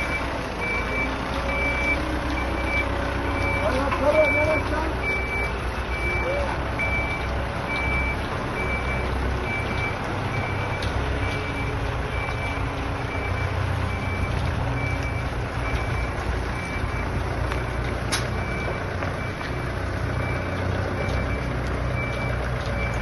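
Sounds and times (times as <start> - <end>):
motion warning beeper: 0.0 - 17.7
diesel engine running: 0.0 - 23.0.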